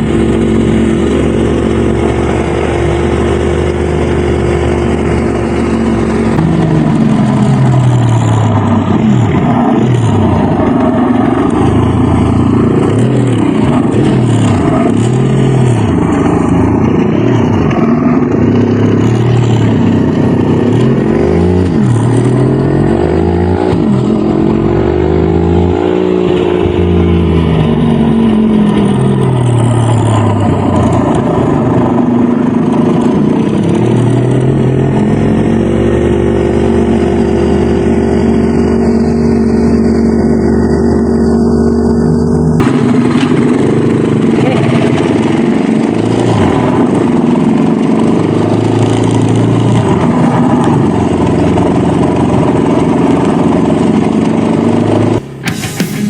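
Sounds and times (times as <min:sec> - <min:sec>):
dirt bike engine revving: 0:00.0 - 0:31.0, 0:54.7 - 0:56.0.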